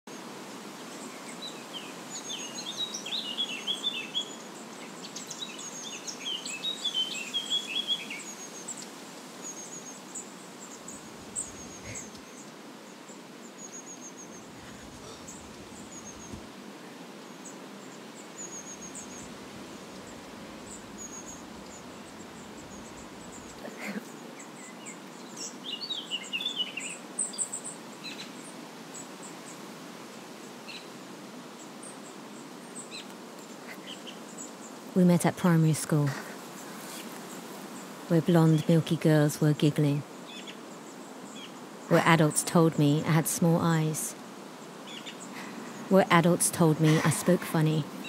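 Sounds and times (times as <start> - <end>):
steady outdoor hiss: 0.1 - 48.0
birds chirping and singing: 2.1 - 8.8, 10.6 - 12.5, 13.6 - 16.5, 18.3 - 27.4.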